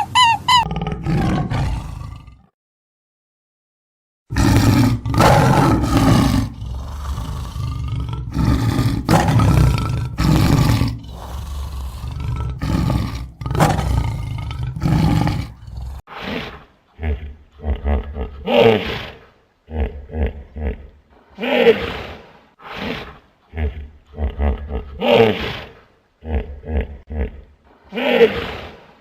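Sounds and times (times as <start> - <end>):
big cat roaring: 0.0 - 2.5, 4.3 - 20.9.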